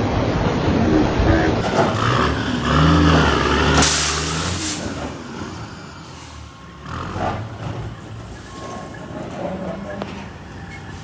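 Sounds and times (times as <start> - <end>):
vehicle engine running: 0.0 - 1.6.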